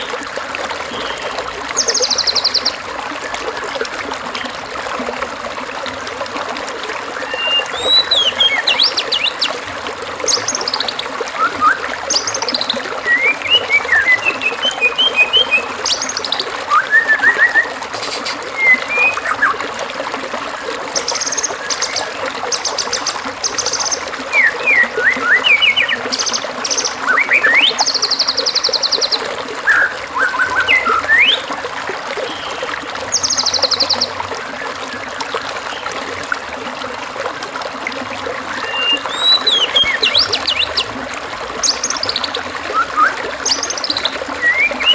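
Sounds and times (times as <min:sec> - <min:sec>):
stream running: 0:00.0 - 0:44.9
bird singing whistled phrases: 0:07.2 - 0:09.3, 0:10.3 - 0:19.6, 0:21.0 - 0:31.5, 0:38.6 - 0:40.9, 0:41.6 - 0:44.9.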